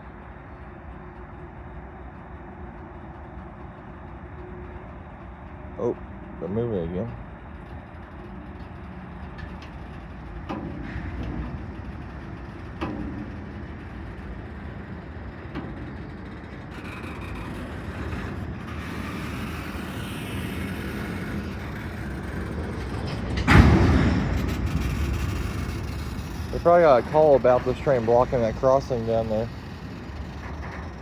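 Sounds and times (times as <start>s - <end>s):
freight train rumbling: 0.0s - 31.0s
sharp knocks of train: 20.4s - 29.8s
loud thump: 23.4s - 25.0s.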